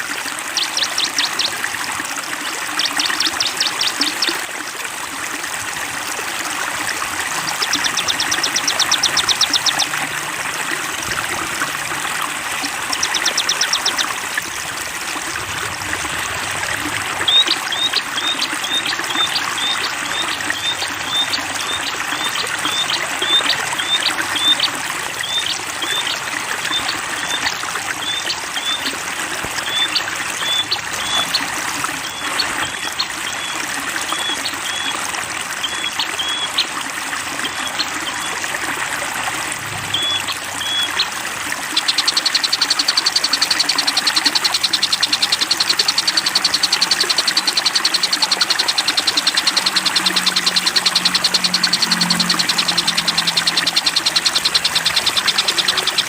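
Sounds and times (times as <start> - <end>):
water trickling: 0.0 - 56.0
bird trill: 0.5 - 1.6, 2.6 - 4.4, 7.3 - 10.1, 12.6 - 14.2, 16.7 - 28.9, 41.7 - 56.0
songbird chirping: 0.6 - 1.6, 2.7 - 4.4, 7.3 - 10.1, 12.8 - 14.2, 41.7 - 56.0.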